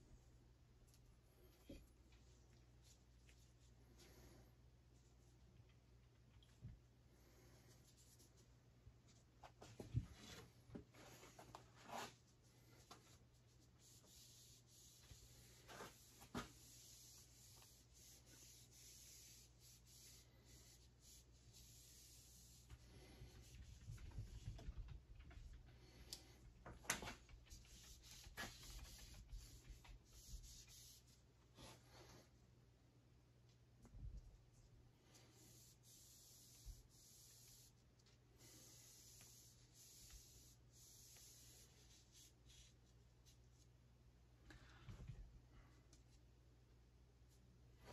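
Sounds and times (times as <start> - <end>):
scratching and rubbing on wood: 26.9 - 31.8.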